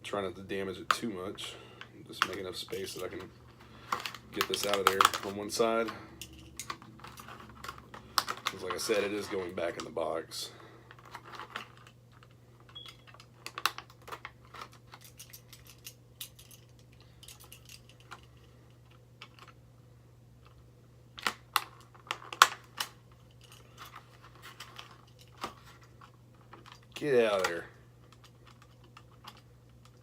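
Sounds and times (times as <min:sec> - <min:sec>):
packaging being opened: 0:02.2 - 0:05.5.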